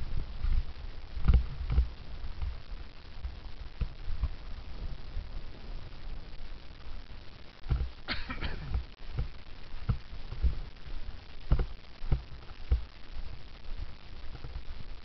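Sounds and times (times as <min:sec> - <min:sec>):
wind rumbling on microphone: 0:00.0 - 0:15.0
bicycle knocks and rattles: 0:07.6 - 0:10.7, 0:11.4 - 0:12.9.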